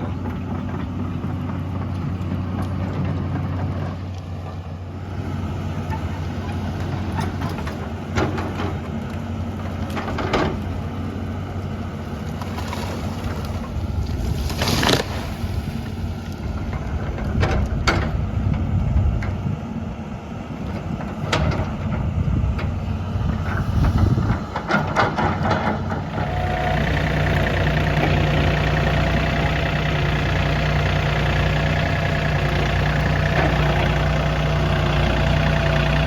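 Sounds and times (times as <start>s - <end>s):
excavator diesel engine running: 0.0s - 36.0s
wood cracking and snapping: 14.4s - 15.3s.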